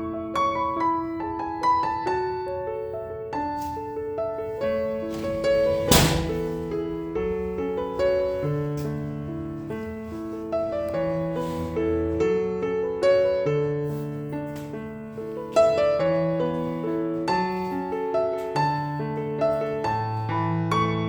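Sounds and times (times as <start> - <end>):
gentle solo piano piece: 0.0 - 21.0.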